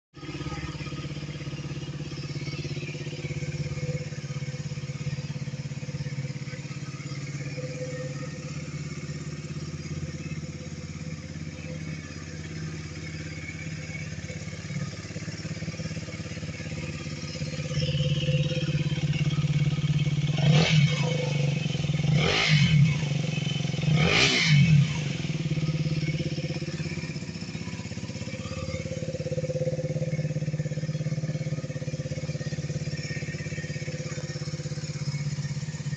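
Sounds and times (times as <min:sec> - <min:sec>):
motorcycle engine idling: 0:00.2 - 0:35.9
engine revving: 0:17.2 - 0:27.4.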